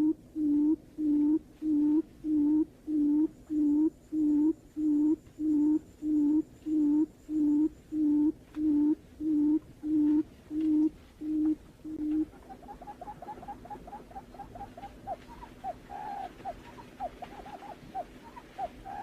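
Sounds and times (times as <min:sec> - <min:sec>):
bird low hollow hoots: 0:00.0 - 0:19.0.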